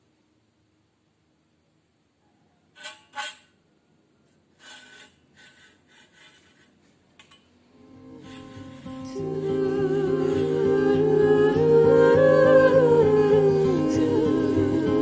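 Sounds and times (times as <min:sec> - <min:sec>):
background music: 0:07.8 - 0:15.0.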